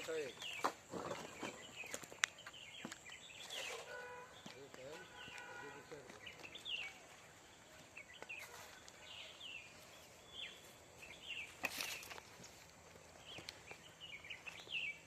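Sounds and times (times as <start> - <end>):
small birds chirping: 0.0 - 15.0
scraping or rustling noise: 3.4 - 4.0.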